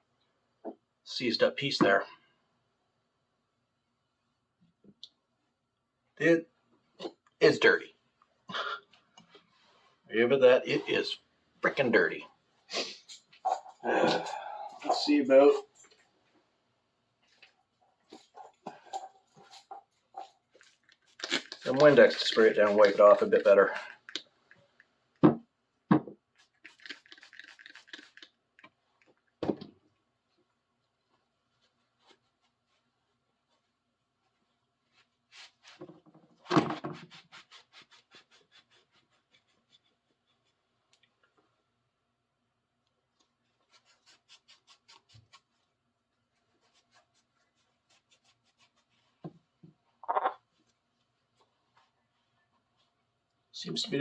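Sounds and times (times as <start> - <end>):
cloth rubbing on metal wrench: 18.0 - 24.7
spray bottle squirting: 20.6 - 24.6, 26.3 - 28.4.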